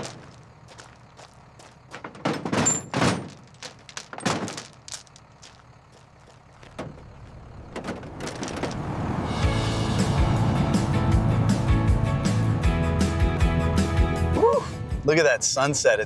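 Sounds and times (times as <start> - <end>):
truck doors thudding shut: 1.9 - 4.9, 6.6 - 9.2.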